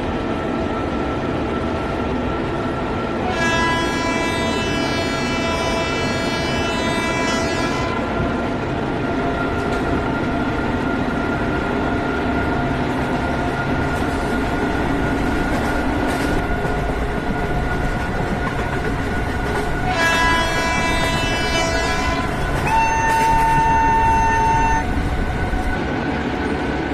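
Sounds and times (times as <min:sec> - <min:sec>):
locomotive rumble and whine: 0:00.0 - 0:26.9
locomotive horn: 0:03.2 - 0:08.1, 0:19.8 - 0:25.0.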